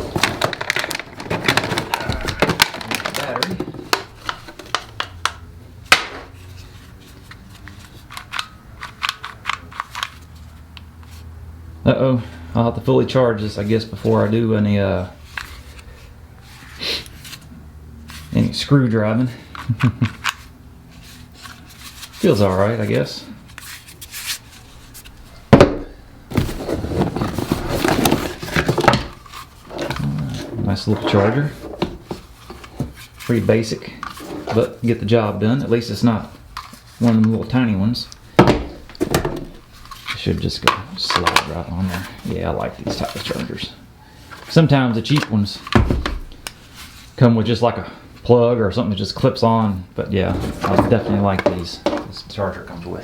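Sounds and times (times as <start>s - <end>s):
packaging rustling and clattering: 0.0s - 10.5s, 26.3s - 34.9s, 38.2s - 43.7s, 50.2s - 52.2s
loud knock of object set down: 25.5s - 26.6s.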